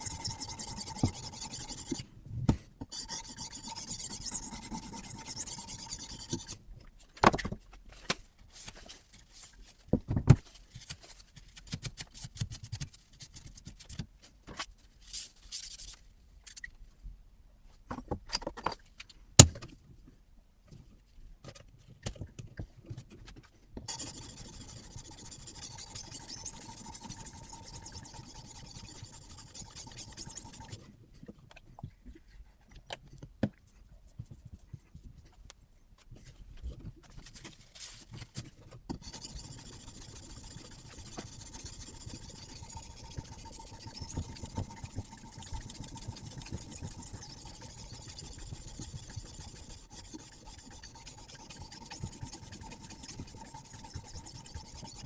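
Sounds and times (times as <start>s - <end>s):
sharpening stone scraping knife: 0.0s - 2.0s, 2.9s - 6.6s, 23.9s - 30.8s, 39.0s - 55.0s.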